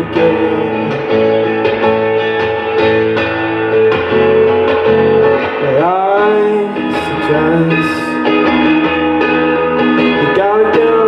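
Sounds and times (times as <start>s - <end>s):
man singing: 0.0s - 1.6s, 5.5s - 8.5s, 10.1s - 11.0s
acoustic guitar strumming: 0.0s - 11.0s.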